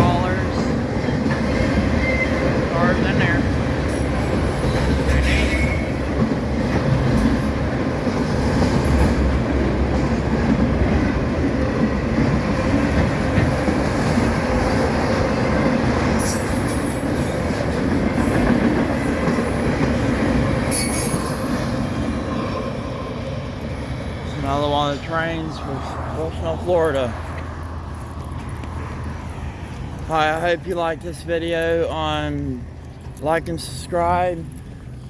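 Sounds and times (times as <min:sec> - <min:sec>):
train wheels rumbling on rail: 0:00.0 - 0:35.0
high-pitched wheel squeals: 0:01.8 - 0:02.6, 0:03.9 - 0:06.1, 0:16.2 - 0:17.7, 0:19.5 - 0:22.0.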